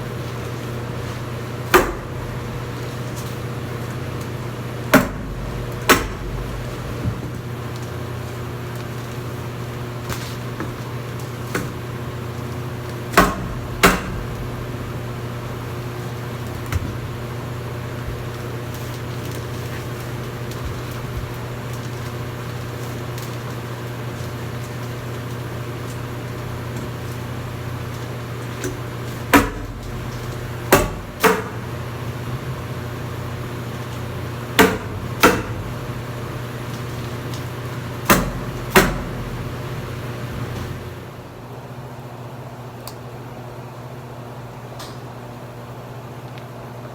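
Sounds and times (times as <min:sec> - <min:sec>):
steady low hum: 0:00.0 - 0:46.9
sharp knocks: 0:13.1 - 0:14.8.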